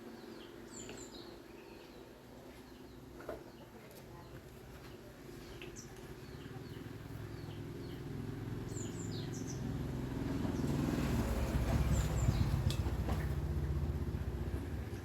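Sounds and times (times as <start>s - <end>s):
birds chirping: 0.0s - 15.0s
low motor hum: 7.4s - 15.0s.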